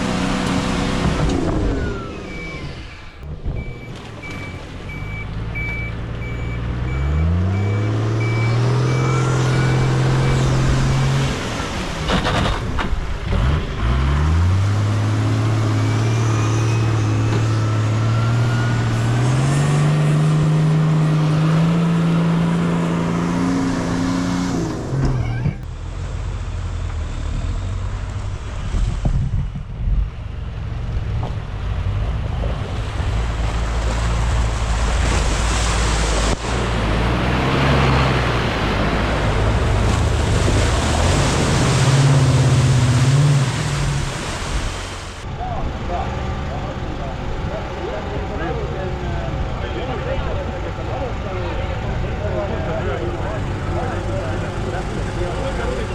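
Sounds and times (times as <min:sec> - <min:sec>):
truck engines revving: 0:00.0 - 0:55.9
high beeping: 0:03.6 - 0:10.7.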